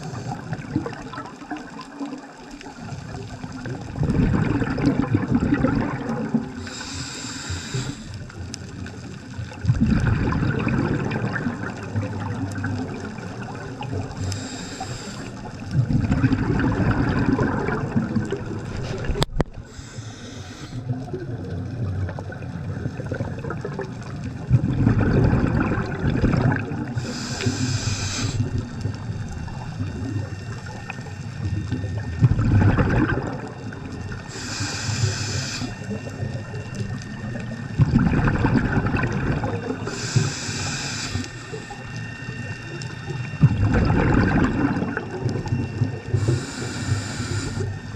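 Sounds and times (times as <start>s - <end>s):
regulator hissing inhale: 0.0s - 0.8s, 2.5s - 3.6s, 6.5s - 8.6s, 13.9s - 15.8s, 18.8s - 21.1s, 26.9s - 29.2s, 34.1s - 36.4s, 39.8s - 42.3s, 46.0s - 47.9s
gurgling exhaled bubbles: 0.0s - 47.9s.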